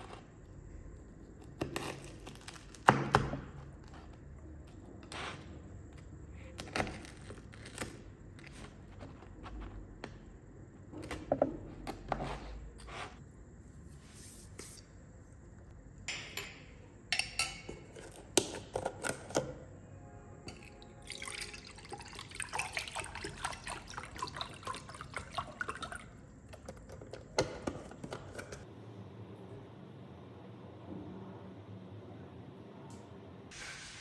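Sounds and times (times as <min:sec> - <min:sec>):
liquid pouring and splashing: 0:20.5 - 0:26.8.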